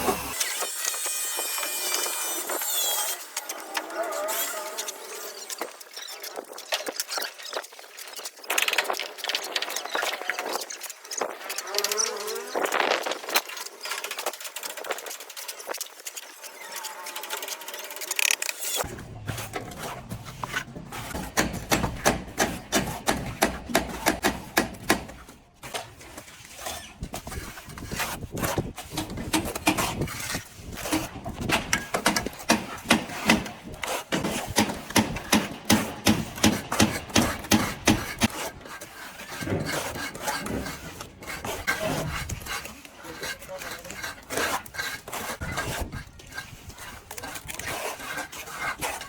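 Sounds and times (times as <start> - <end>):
plastering tool scraping wall: 10.5 - 49.0.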